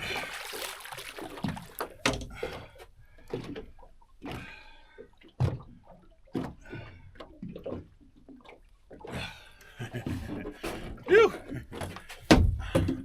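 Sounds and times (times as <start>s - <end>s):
fish thumping on boat: 0.0s - 4.4s, 11.7s - 13.0s.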